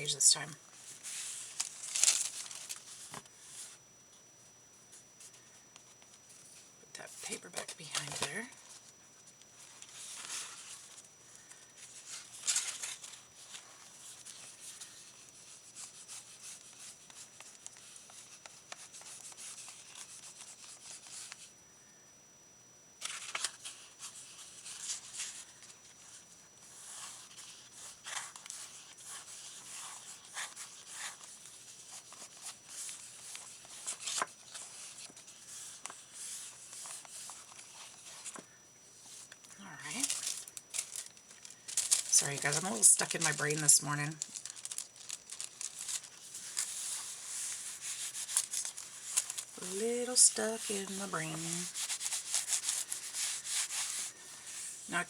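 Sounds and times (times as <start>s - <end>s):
paper rustling and scraping: 0.8s - 3.8s, 9.6s - 11.0s, 11.8s - 21.5s, 23.0s - 38.4s, 39.9s - 54.9s.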